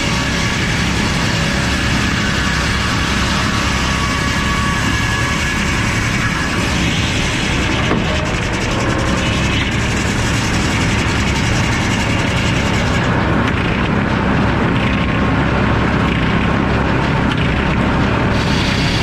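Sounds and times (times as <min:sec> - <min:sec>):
circular saw running: 0:00.0 - 0:13.6, 0:18.3 - 0:19.0.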